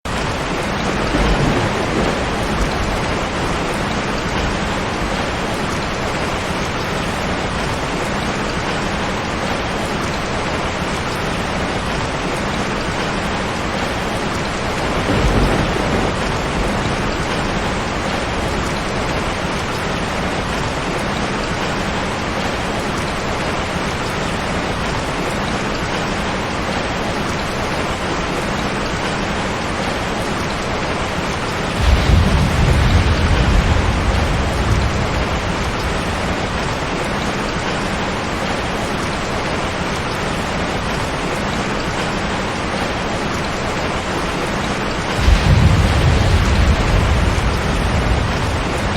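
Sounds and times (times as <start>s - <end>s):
heavy rainfall: 0.0s - 48.9s
thunder rumbles: 0.1s - 9.8s, 11.6s - 22.8s, 31.4s - 41.2s, 44.6s - 48.9s.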